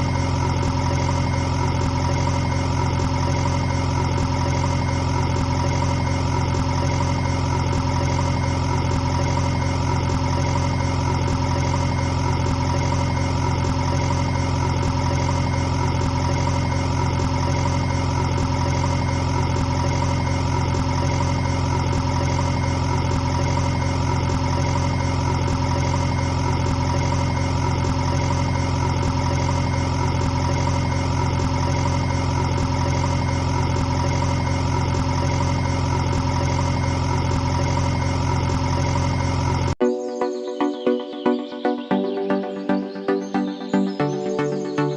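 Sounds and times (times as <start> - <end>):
motor humming: 0.0 - 39.8.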